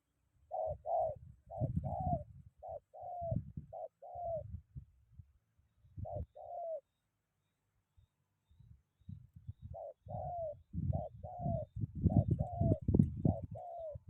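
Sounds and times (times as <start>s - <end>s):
dove cooing: 0.5s - 4.6s, 6.0s - 6.9s, 9.6s - 14.0s
wind rumble on microphone: 0.8s - 6.4s, 8.5s - 14.0s.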